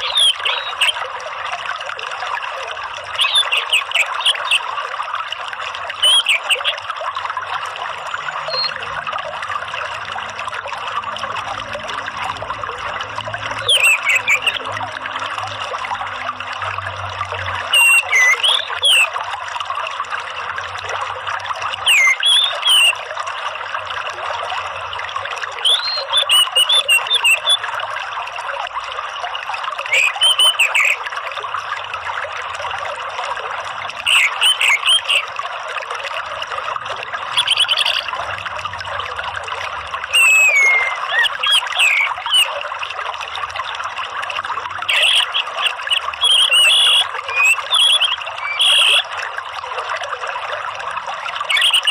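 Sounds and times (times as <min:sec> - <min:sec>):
thrush calls: 0:00.0 - 0:01.0, 0:03.2 - 0:04.7, 0:13.6 - 0:14.7, 0:17.7 - 0:19.2, 0:21.8 - 0:23.0, 0:25.6 - 0:27.6, 0:29.9 - 0:31.0, 0:34.0 - 0:35.3, 0:40.1 - 0:42.5, 0:44.8 - 0:49.1, 0:51.4 - 0:51.9
trickling running water: 0:00.0 - 0:51.9.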